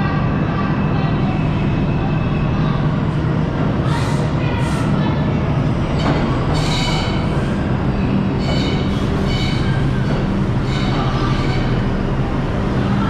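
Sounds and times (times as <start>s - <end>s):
subway car rumble and hum: 0.0s - 13.0s
high-pitched train squealing: 5.9s - 12.1s.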